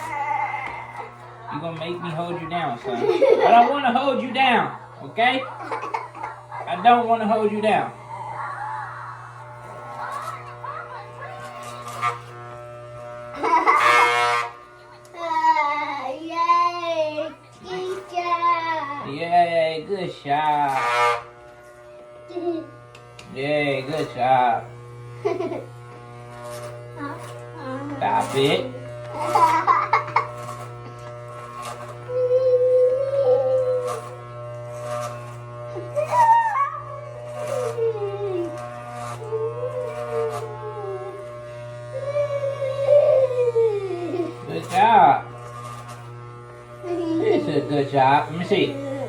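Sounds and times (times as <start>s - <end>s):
child crying and wailing: 0.0s - 1.2s, 8.0s - 11.0s, 15.2s - 19.1s, 32.0s - 34.2s, 35.8s - 44.5s, 46.8s - 47.6s, 48.6s - 49.0s
electric hair clippers humming: 0.0s - 49.0s.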